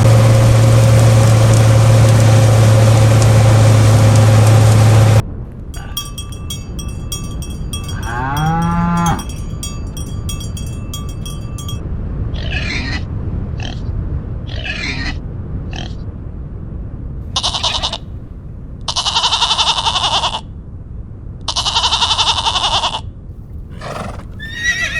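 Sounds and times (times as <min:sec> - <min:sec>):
steady low rumble: 0:00.0 - 0:12.4, 0:15.2 - 0:18.9
cow mooing: 0:07.8 - 0:09.5.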